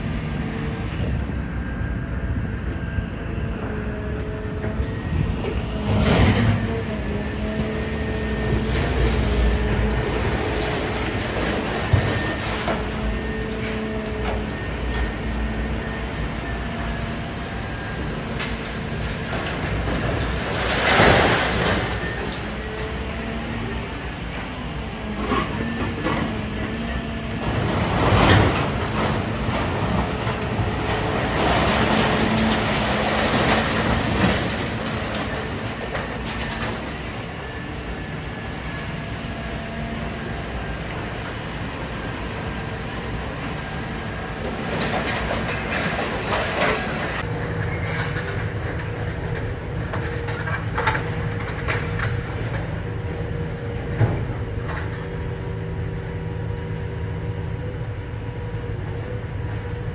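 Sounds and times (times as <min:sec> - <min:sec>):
machine drone and hum: 0:00.0 - 0:59.9
metal crunching and clattering: 0:04.5 - 0:15.4, 0:18.3 - 0:37.6, 0:43.3 - 0:55.4.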